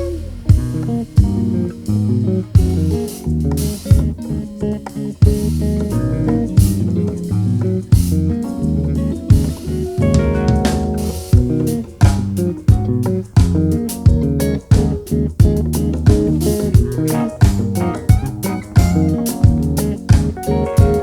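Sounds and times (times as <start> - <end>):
live band playing: 0.0 - 1.9, 9.3 - 14.2, 14.8 - 21.0
electric bass line: 0.0 - 21.0.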